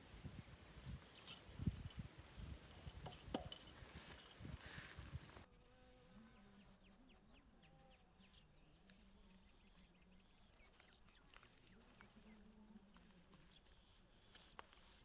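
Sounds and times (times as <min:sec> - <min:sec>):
faint ticks: 0:07.3 - 0:15.0.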